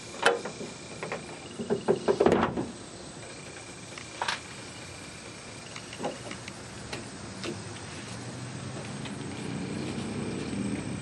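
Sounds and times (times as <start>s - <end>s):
rattling knocks: 0.2s - 2.7s
sharp clicks and knocks: 0.2s - 4.4s, 5.7s - 7.6s.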